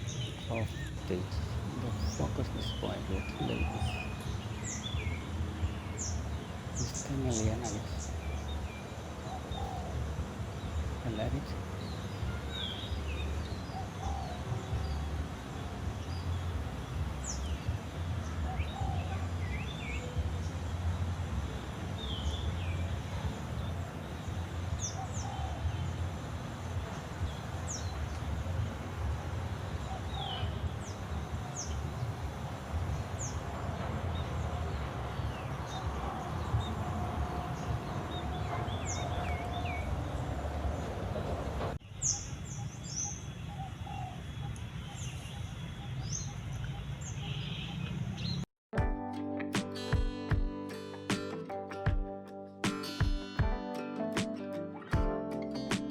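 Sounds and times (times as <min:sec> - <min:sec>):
low outdoor rumble: 0:00.0 - 0:41.8
songbirds chirping: 0:00.0 - 0:48.5.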